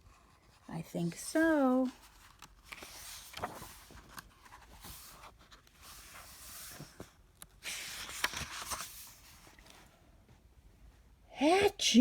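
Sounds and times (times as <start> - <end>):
book pages rustling: 0.0 - 9.9.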